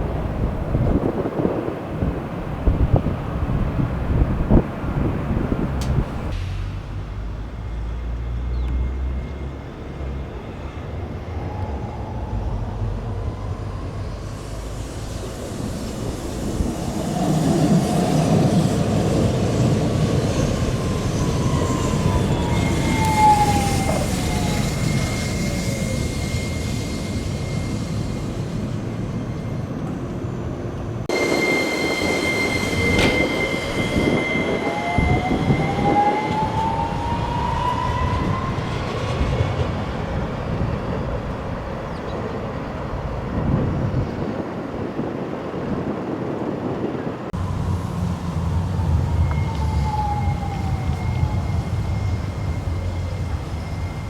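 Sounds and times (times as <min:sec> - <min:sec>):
tram wheels rumbling on rails: 0:00.0 - 0:54.0
steady high tone: 0:05.8 - 0:39.4, 0:47.4 - 0:54.0
traction motor whine: 0:19.6 - 0:30.1, 0:31.1 - 0:39.4.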